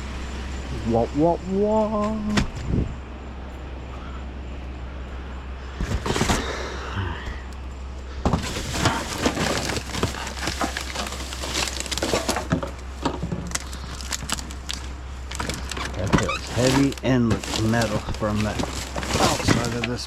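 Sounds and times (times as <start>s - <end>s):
hard objects clattering: 8.2s - 20.0s.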